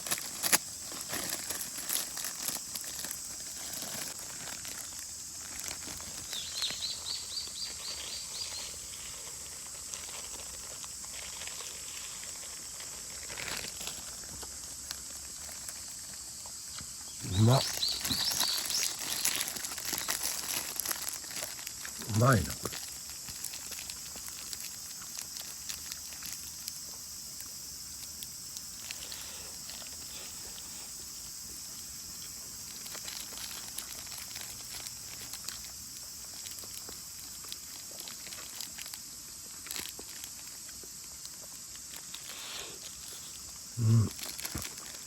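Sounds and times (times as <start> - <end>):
wood fire hissing and crackling: 0.0 - 45.0
short low voice: 17.2 - 17.7, 22.0 - 22.7, 43.8 - 44.1.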